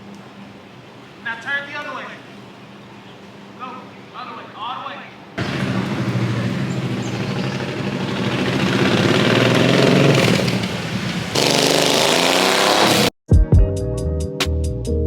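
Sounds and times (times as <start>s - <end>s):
motor humming with rough noise: 5.4s - 12.0s.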